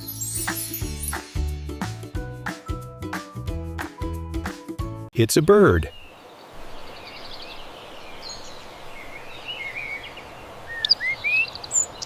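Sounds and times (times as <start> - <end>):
outdoor background hiss: 5.2 - 12.0
bird chirping: 5.6 - 12.0.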